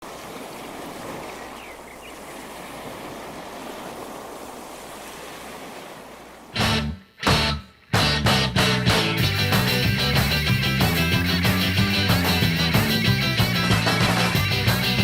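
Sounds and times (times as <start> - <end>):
ocean surf breaking: 0.0 - 7.0.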